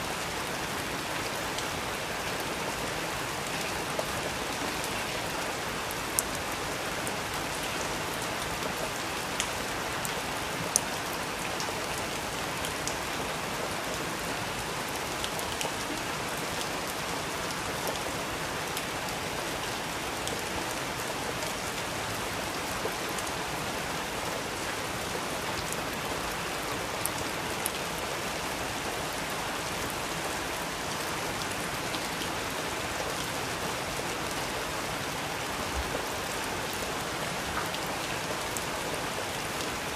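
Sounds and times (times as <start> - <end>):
steady rain falling: 0.0 - 39.9
sharp rain ticks: 12.6 - 13.2.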